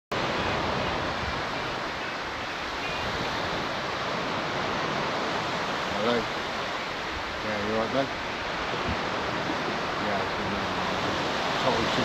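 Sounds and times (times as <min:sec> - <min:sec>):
sea surf on beach: 0:00.1 - 0:12.0
wind: 0:00.1 - 0:12.0.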